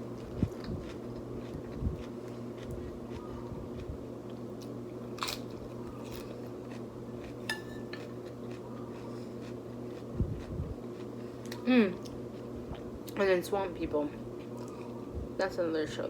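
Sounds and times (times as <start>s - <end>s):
steady low hum: 0.0s - 16.0s
person biting and chewing food: 0.2s - 4.0s, 4.6s - 12.9s.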